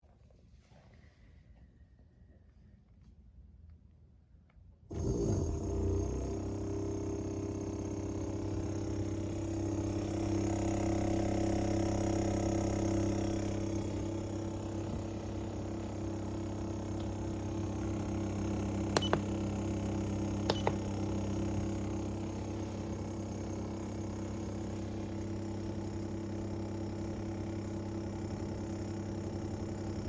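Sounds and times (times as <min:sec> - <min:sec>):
low electric hum: 0:01.4 - 0:30.0.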